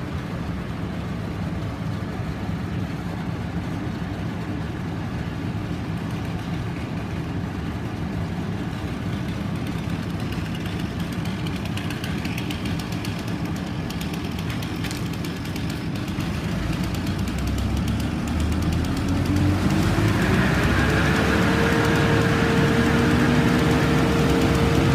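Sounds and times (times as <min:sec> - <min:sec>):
heavy engine running: 0:00.0 - 0:24.9.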